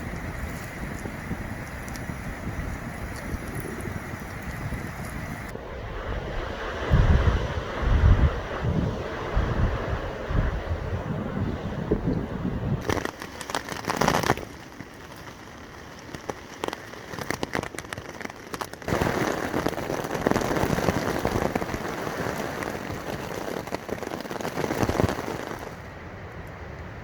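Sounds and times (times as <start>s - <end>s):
rain on a tent: 0.0s - 5.6s, 12.8s - 26.7s.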